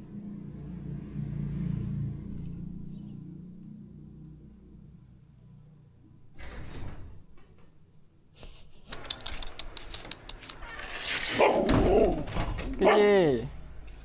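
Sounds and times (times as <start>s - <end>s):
rapid clicking and rattling: 8.9s - 11.0s
brief rustle: 8.9s - 11.7s.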